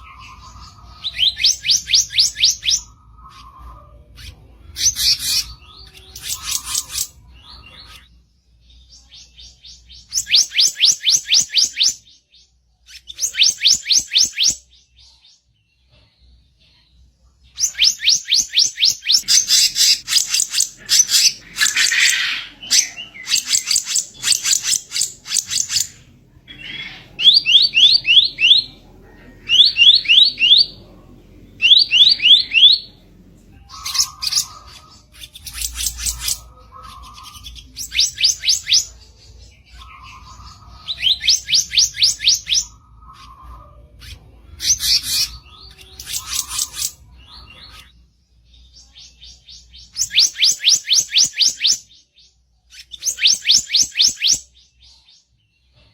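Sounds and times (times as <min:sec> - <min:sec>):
songbird harsh chattering song: 0:00.0 - 0:12.2, 0:17.5 - 0:30.9, 0:31.5 - 0:43.5, 0:44.6 - 0:47.0.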